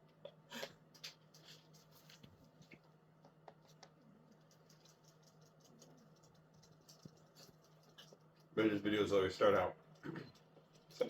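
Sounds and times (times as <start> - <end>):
faint ticks and scratches: 0.8 - 11.0.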